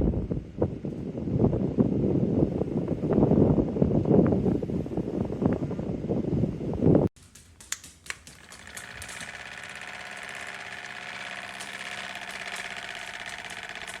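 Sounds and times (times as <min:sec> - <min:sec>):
electric fan whirring: 0:00.1 - 0:14.0
fan switch clicks: 0:07.2 - 0:14.0.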